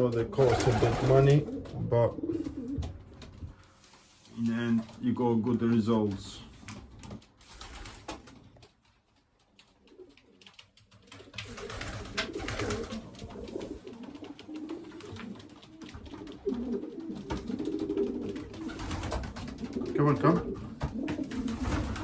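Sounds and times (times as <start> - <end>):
pigeons cooing: 0.0 - 3.1, 11.1 - 22.0
light clicks of birds moving: 0.0 - 22.0.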